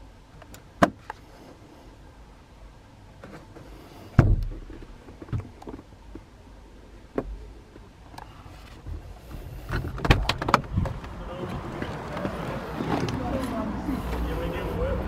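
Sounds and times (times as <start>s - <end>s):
heavy thump with low boom: 4.2s - 4.8s.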